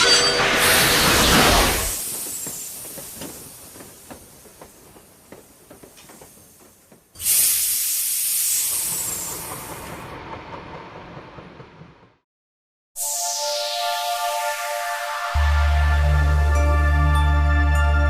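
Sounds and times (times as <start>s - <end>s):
steam locomotive hissing: 0.0s - 10.2s.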